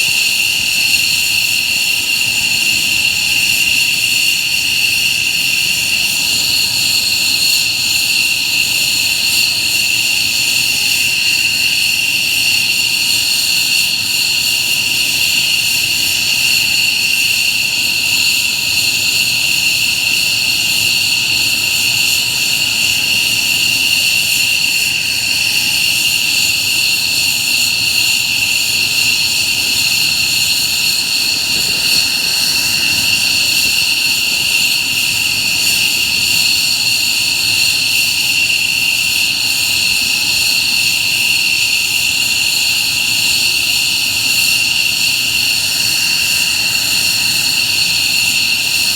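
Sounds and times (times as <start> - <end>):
jet engines idling: 13.7 - 37.6.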